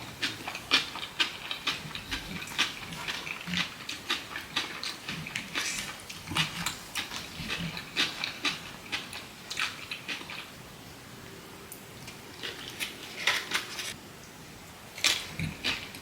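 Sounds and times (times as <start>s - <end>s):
wet mouth clicks and chewing: 0.2s - 10.5s, 15.0s - 16.0s.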